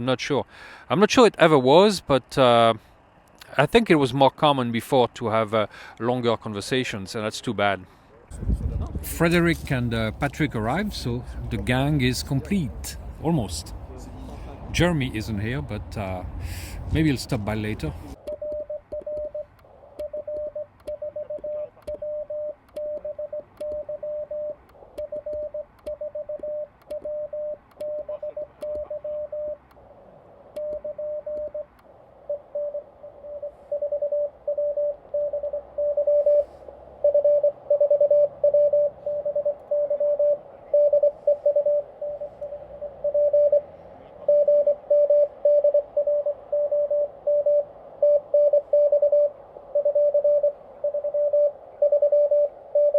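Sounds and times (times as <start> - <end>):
morse code tone: 17.1 - 29.6, 30.6 - 31.7, 32.3 - 52.9.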